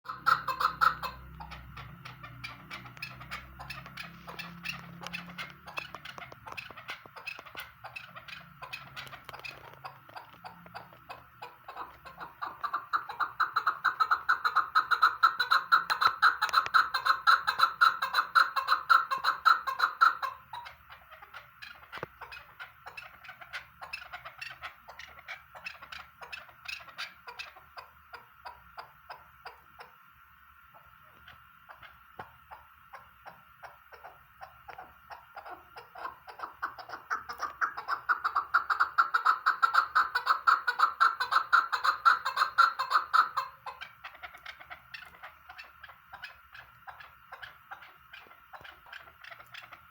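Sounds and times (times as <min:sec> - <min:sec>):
partridge calling rapid notes: 0:00.1 - 0:30.0, 0:31.3 - 0:49.9.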